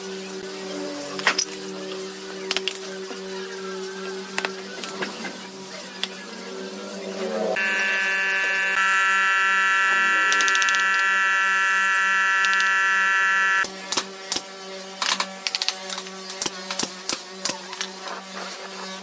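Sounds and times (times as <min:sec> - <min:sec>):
power tool motor whining: 0:07.6 - 0:13.7.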